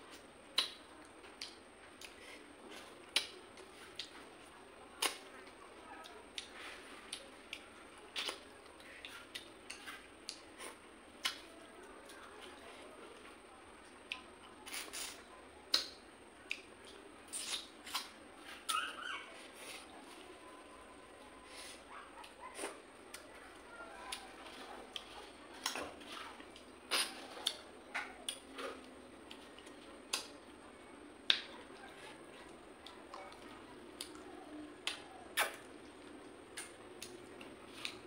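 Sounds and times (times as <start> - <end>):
wet mouth smacks and chewing: 34.8 - 35.7.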